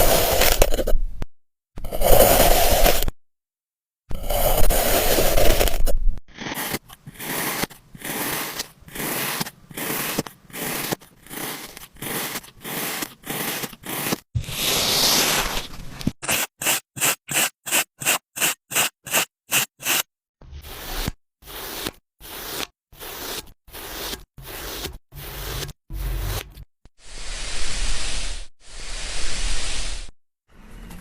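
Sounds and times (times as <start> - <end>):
sand crunching and scraping: 6.5 - 17.2.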